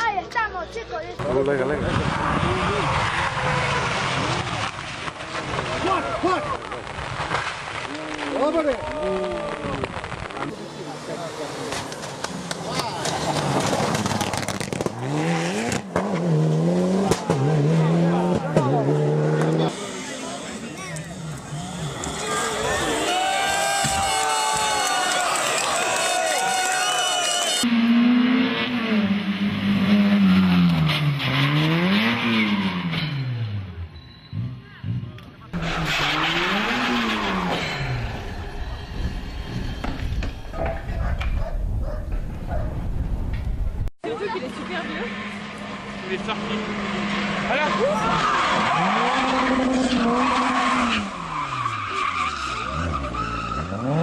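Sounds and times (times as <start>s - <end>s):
rally car engine revving: 1.2s - 8.3s, 9.9s - 25.6s, 27.6s - 38.5s, 44.2s - 54.0s
tyres sliding: 35.6s - 40.8s.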